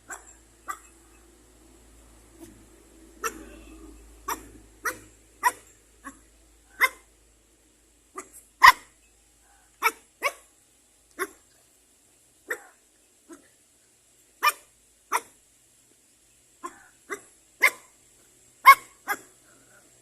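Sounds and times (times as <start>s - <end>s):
dog barking: 0.0s - 1.2s, 3.2s - 7.1s, 8.2s - 10.5s, 11.2s - 11.4s, 12.5s - 13.5s, 14.4s - 15.4s, 16.6s - 17.9s, 18.6s - 19.9s.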